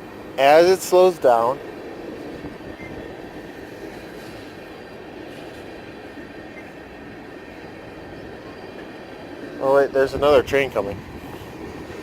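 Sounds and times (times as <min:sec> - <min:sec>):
freight train wheels rumbling on rails: 0:07.0 - 0:12.0.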